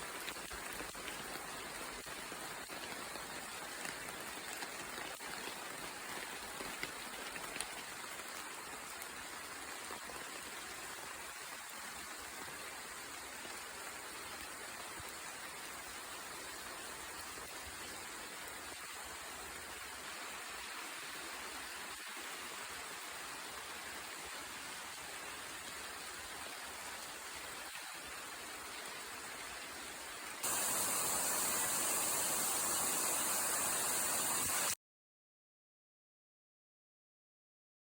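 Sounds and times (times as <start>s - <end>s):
raindrops tapping: 0.0s - 9.1s
rain hiss: 0.0s - 34.8s.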